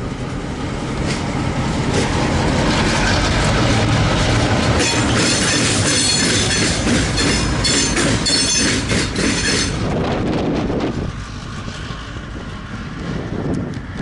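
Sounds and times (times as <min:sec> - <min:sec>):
train rumble: 0:00.0 - 0:14.0
train wheels clacking: 0:01.0 - 0:13.7
high wheel squeal: 0:04.8 - 0:09.9.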